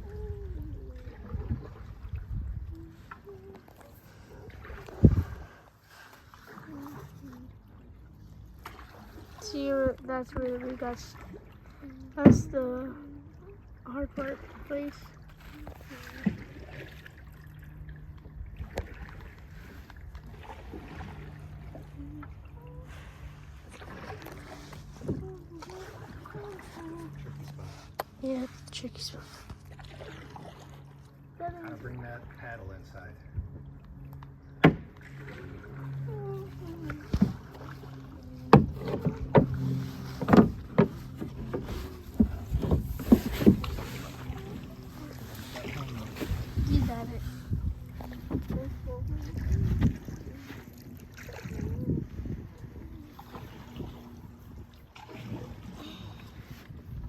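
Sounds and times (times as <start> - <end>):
faint water sounds: 0.0 - 57.0
low rumble: 31.3 - 57.0.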